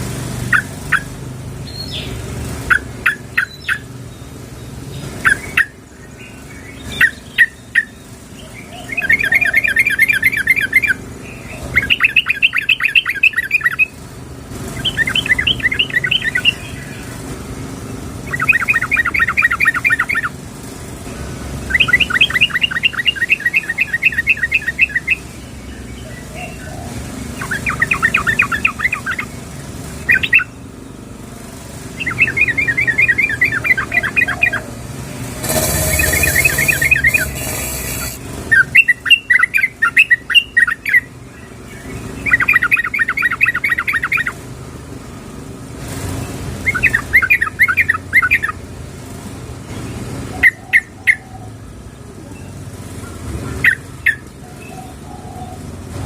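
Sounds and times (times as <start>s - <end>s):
bird calling in quick bursts: 32.0s - 41.1s.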